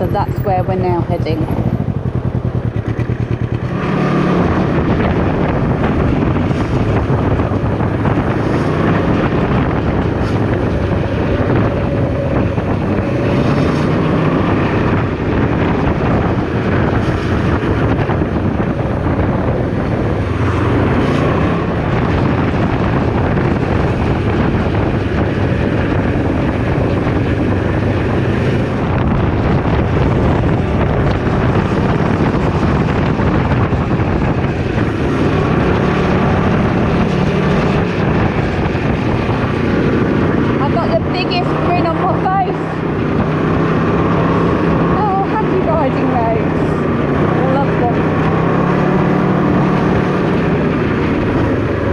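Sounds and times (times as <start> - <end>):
motorcycle engine running: 0.0 - 51.9
wind buffeting microphone: 0.0 - 51.9.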